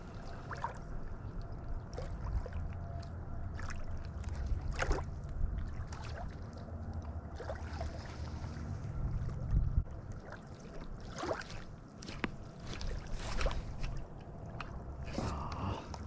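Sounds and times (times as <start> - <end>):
flowing river water: 0.0 - 16.0
wind on microphone: 8.3 - 9.9.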